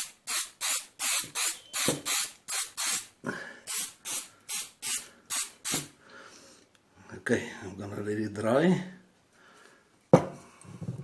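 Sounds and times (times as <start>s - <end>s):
aerosol can spraying: 0.0s - 3.1s, 3.7s - 5.9s.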